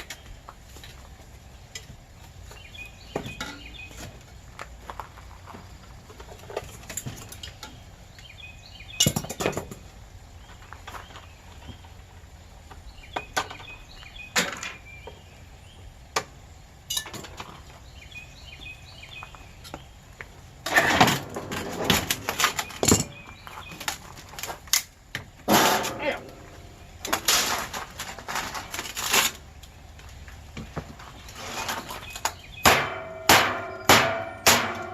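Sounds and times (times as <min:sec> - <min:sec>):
sheet metal clanking: 0:20.6 - 0:23.3, 0:25.5 - 0:27.9, 0:32.6 - 0:34.9.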